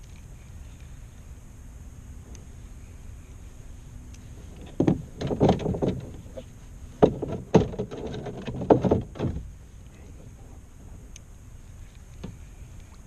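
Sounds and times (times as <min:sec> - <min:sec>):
hollow knocks on kayak: 0:04.6 - 0:06.4, 0:07.0 - 0:09.5.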